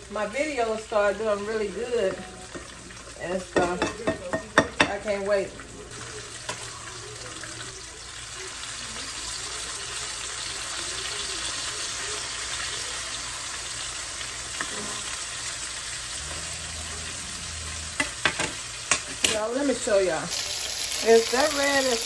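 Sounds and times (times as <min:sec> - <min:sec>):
meat sizzling in a pan: 0:00.0 - 0:22.0.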